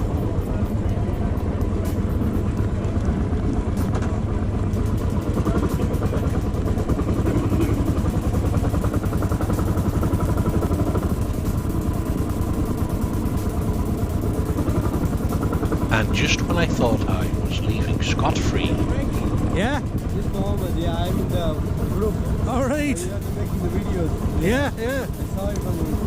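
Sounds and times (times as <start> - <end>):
single-cylinder motorcycle engine running: 0.0 - 26.0.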